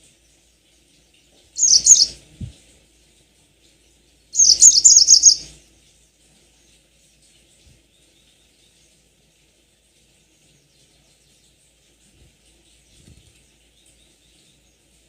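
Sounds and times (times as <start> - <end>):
faint hiss: 0.0 - 15.0
birdsong: 0.2 - 2.7, 3.7 - 5.5, 10.1 - 15.0.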